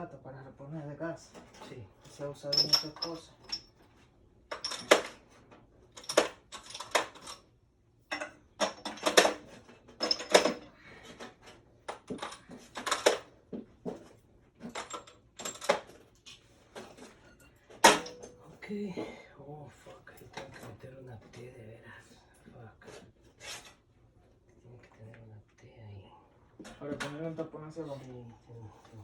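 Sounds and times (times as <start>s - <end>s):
metal tools clanking: 1.3s - 3.8s, 4.5s - 5.2s, 6.0s - 7.5s, 8.1s - 13.3s, 14.6s - 16.1s, 16.7s - 18.7s.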